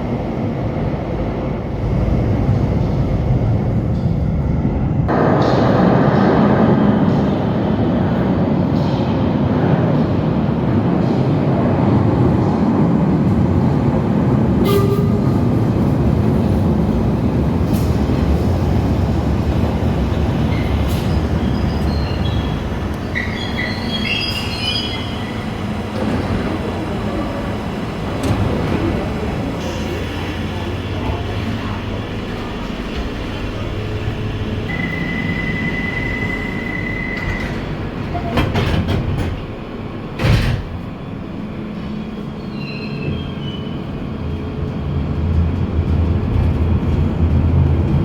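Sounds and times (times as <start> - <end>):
train rumbling: 0.0 - 48.0
wheel squeal: 20.4 - 25.4, 42.4 - 43.9.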